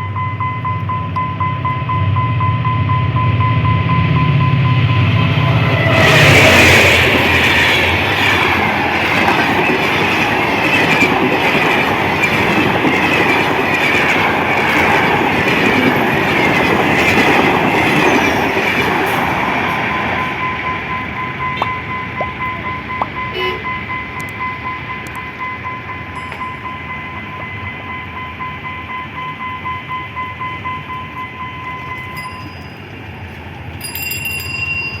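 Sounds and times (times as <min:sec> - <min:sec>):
steady high beeping tone: 0:00.0 - 0:19.2, 0:19.9 - 0:33.1
train passing: 0:00.0 - 0:35.0
wheels clacking over rail joints: 0:05.5 - 0:23.2.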